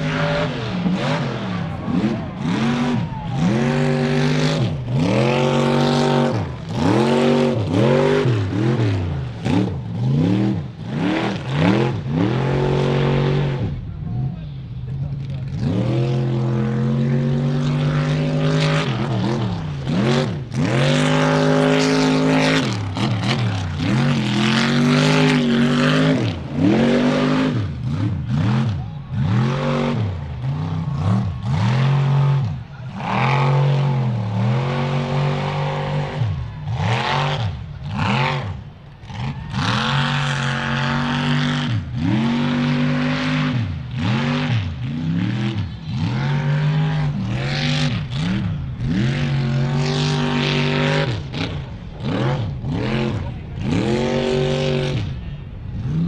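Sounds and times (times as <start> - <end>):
truck engine revving hard: 0.0 - 14.3, 14.9 - 56.0.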